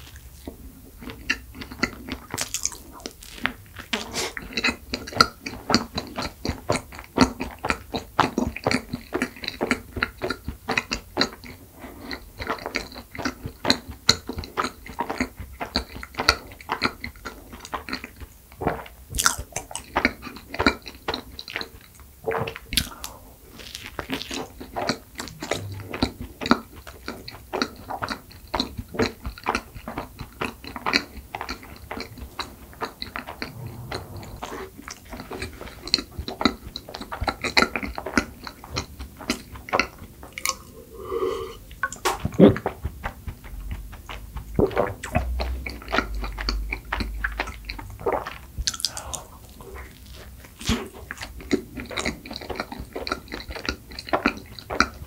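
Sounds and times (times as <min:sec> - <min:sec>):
biting and chewing soft bun: 0:00.0 - 0:33.6
mouth clicks and smacks: 0:41.8 - 0:55.0.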